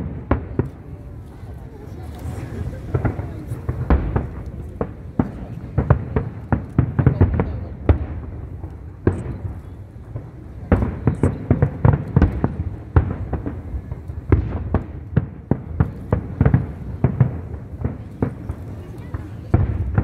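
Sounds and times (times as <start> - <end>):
firework shells bursting: 2.2 - 20.0.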